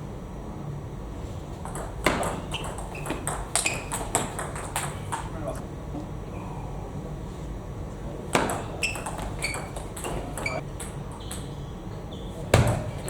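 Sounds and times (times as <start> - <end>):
ball pinging off table: 1.5 - 5.4, 8.3 - 11.6, 12.5 - 13.0
ball clicking off bats: 1.5 - 6.1, 7.9 - 13.0.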